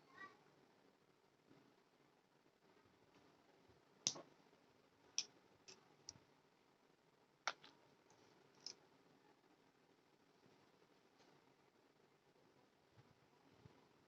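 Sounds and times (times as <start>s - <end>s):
sharp clicks and taps: 7.5s - 7.8s.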